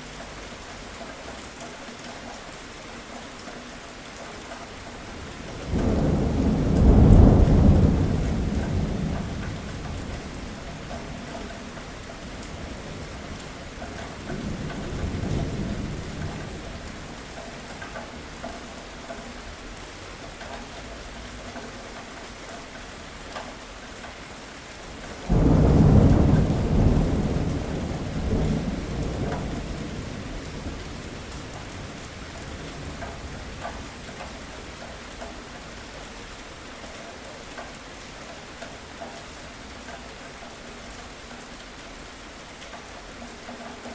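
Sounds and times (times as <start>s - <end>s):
steady rain: 0.0s - 43.9s
thunder rolling: 5.6s - 11.2s, 25.3s - 34.0s.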